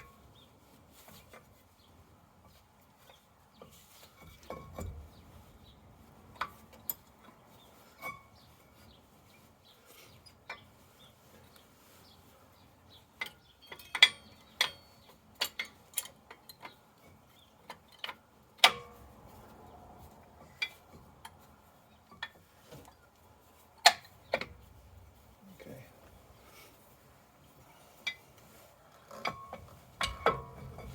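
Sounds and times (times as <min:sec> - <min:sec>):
metallic clicks of tools: 0:13.2 - 0:16.7.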